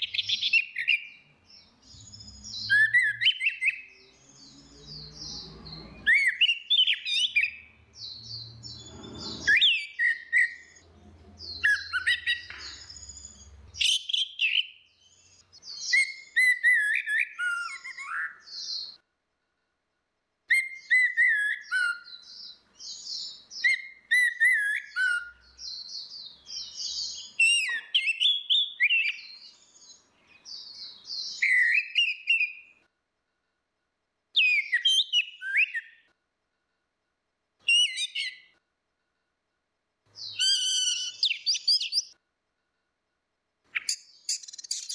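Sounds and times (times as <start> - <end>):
thrush singing whistled phrases: 2.3 - 4.0, 6.0 - 7.7, 8.9 - 10.8, 11.6 - 12.8, 15.7 - 18.8, 20.5 - 22.2, 22.9 - 25.4, 30.8 - 32.7, 34.4 - 36.1, 40.2 - 42.1.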